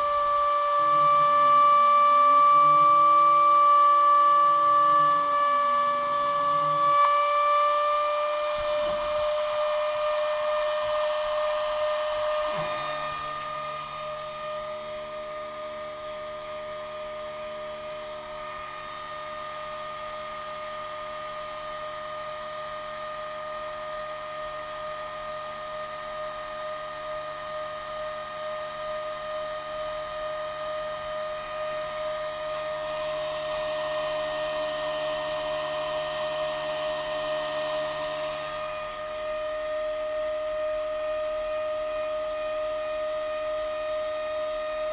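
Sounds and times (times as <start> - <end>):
stepper motors whining: 0.0 - 14.4.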